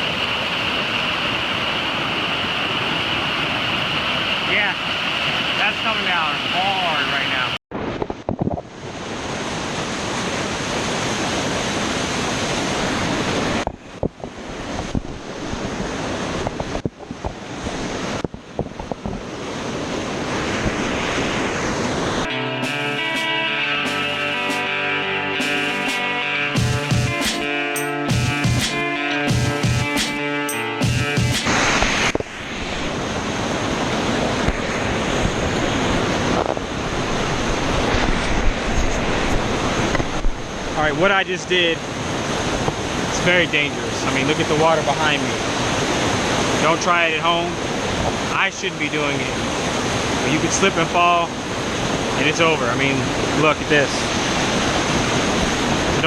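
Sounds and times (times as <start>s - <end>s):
waterfall rushing: 0.0s - 7.6s, 30.8s - 56.0s
wind on microphone: 7.7s - 22.3s, 31.4s - 40.8s.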